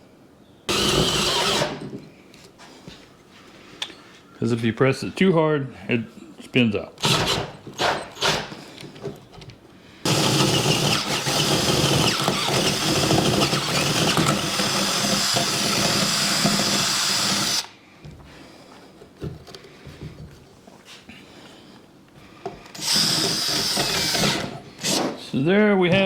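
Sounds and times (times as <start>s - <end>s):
power drill boring through wood: 0.7s - 1.9s, 7.0s - 8.6s, 10.0s - 17.7s, 22.7s - 25.2s.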